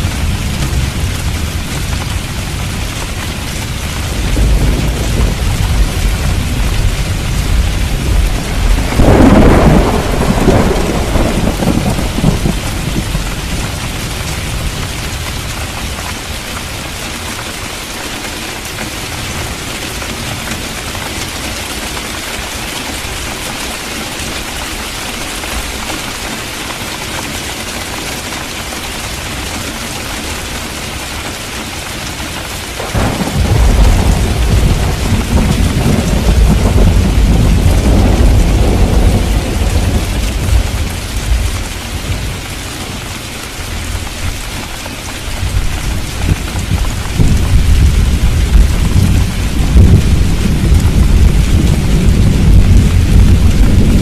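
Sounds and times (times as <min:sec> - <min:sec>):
thunder rumble: 0:00.0 - 0:16.2, 0:32.8 - 0:42.6, 0:45.3 - 0:54.0
heavy rain falling: 0:00.0 - 0:54.0.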